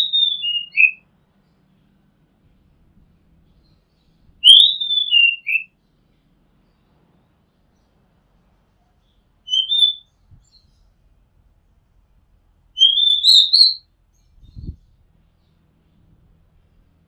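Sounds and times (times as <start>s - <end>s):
bird singing whistled phrases: 0.0s - 1.0s, 4.4s - 5.7s, 9.5s - 10.6s, 12.8s - 13.8s.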